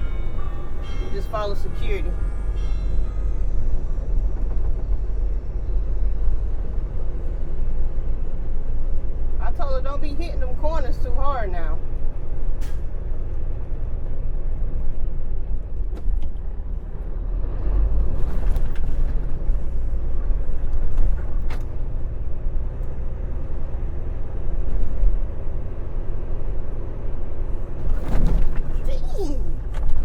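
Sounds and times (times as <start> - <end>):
diesel truck engine rumbling: 0.0 - 30.0.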